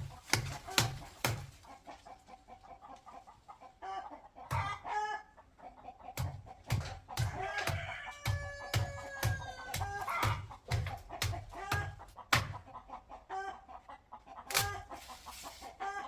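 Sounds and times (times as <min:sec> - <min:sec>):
chickens clucking: 0:00.0 - 0:16.0
short pitched chicken calls: 0:01.8 - 0:06.2, 0:13.1 - 0:16.0.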